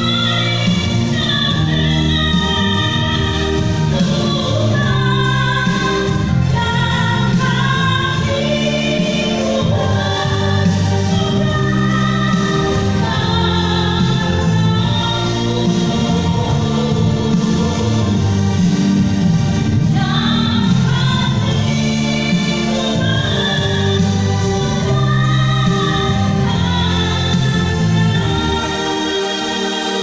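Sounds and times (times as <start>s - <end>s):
person singing: 0.0s - 30.0s.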